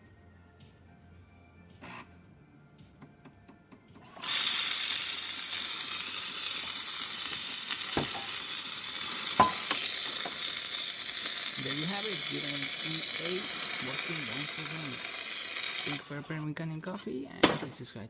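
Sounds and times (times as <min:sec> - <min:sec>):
coffee machine steam hiss: 0:04.2 - 0:16.2.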